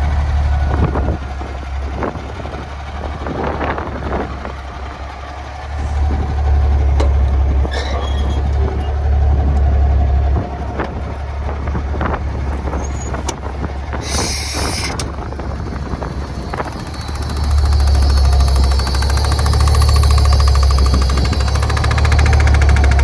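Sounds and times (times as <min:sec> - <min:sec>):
truck engine low rumble: 0:00.0 - 0:23.0
short hiss: 0:14.0 - 0:15.0.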